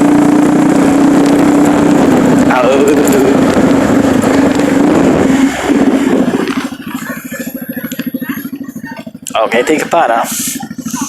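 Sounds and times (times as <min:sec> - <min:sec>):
rushing noise: 0:00.0 - 0:08.6
vehicle engine running: 0:00.0 - 0:11.0.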